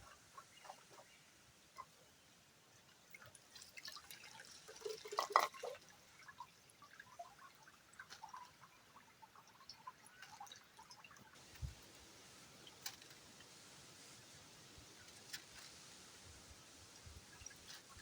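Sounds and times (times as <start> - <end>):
water dripping: 2.9 - 14.2.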